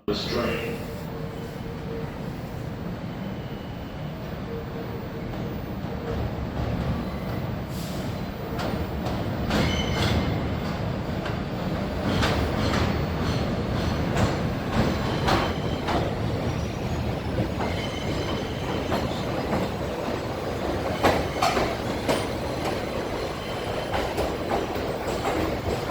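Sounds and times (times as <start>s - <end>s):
subway train rumble: 0.0s - 25.9s
wheels clacking over rail joints: 8.5s - 25.9s.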